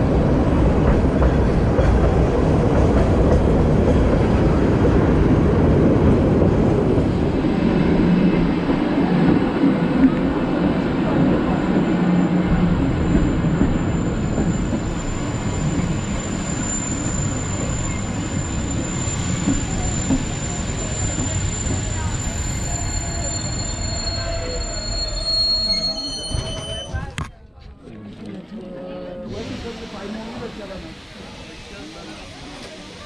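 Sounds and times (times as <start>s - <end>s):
train wheels rumbling on rails: 0.0s - 27.1s
thin high squeal: 13.8s - 27.1s.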